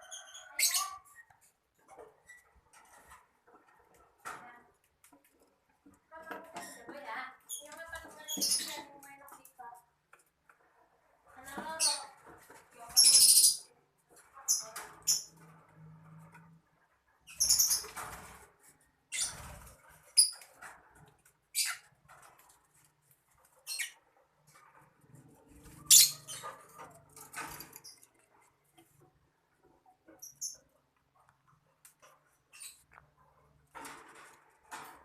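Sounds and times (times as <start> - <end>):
birds chirping and squeaking: 0.0 - 4.4, 6.4 - 9.1, 11.4 - 35.0
rustling and scraping: 1.2 - 7.0, 14.0 - 35.0.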